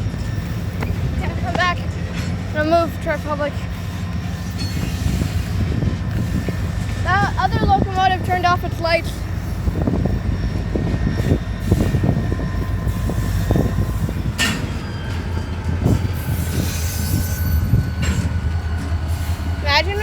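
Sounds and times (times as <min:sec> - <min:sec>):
diesel locomotive rumble: 0:00.0 - 0:20.0
high wheel squeal: 0:00.0 - 0:20.0
wheels clanking on rails: 0:00.0 - 0:20.0.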